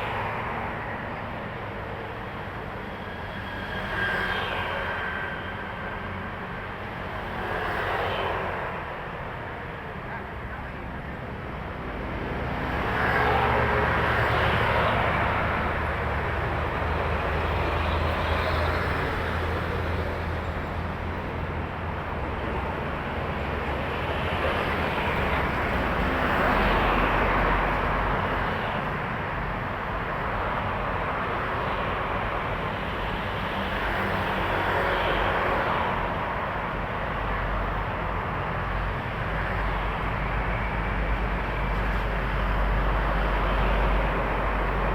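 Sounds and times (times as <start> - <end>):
highway traffic passing: 0.0 - 44.9.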